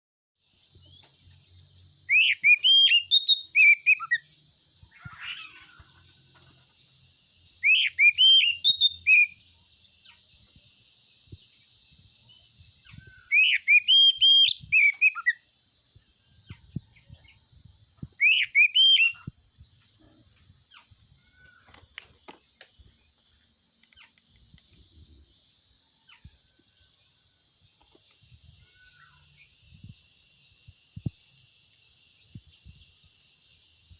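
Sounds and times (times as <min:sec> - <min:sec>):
insects hissing: 0:00.4 - 0:33.9
bird singing whistled notes: 0:00.6 - 0:05.6, 0:07.4 - 0:19.4.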